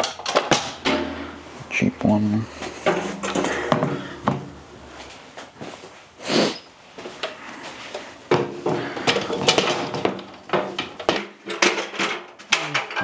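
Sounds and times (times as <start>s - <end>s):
metal clanks and knocks: 0.0s - 5.2s, 8.3s - 13.0s
object scraping: 0.8s - 5.4s.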